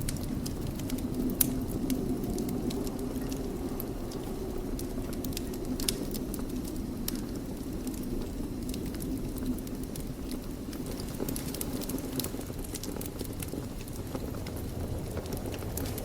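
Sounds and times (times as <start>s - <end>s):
fire flames rumbling: 0.0s - 16.0s
wood fire crackling and popping: 0.0s - 16.0s.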